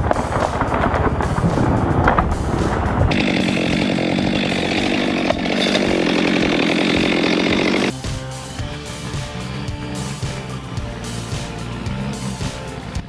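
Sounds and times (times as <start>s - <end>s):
background music: 0.0s - 13.0s
chainsaw running at high revs: 3.1s - 13.0s.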